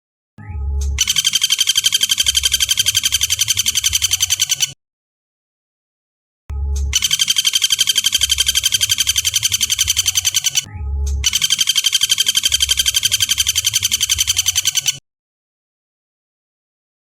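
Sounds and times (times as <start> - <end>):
woodpecker rapid rattling call: 1.0 - 4.8, 7.0 - 10.7, 11.3 - 15.0.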